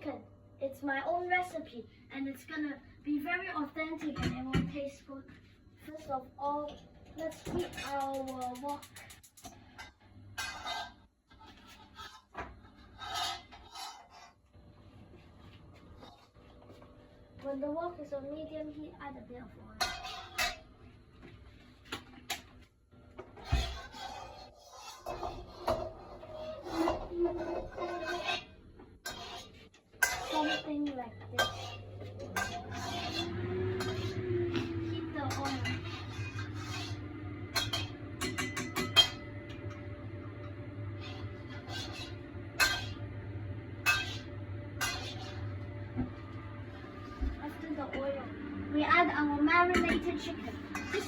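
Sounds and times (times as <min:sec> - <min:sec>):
steady low hum: 0:00.0 - 0:51.0
scraping and rubbing in a wok: 0:07.1 - 0:16.9, 0:19.6 - 0:22.6, 0:23.2 - 0:48.2, 0:49.8 - 0:51.0.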